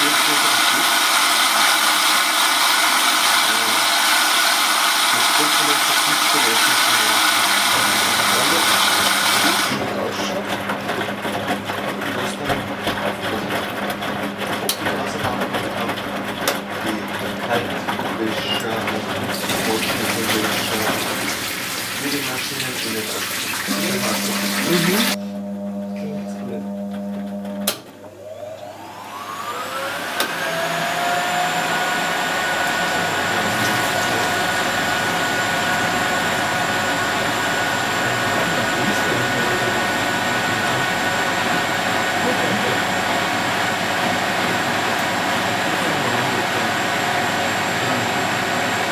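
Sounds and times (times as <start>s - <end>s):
washing machine running: 0.0s - 48.9s
washing machine click: 27.2s - 28.1s.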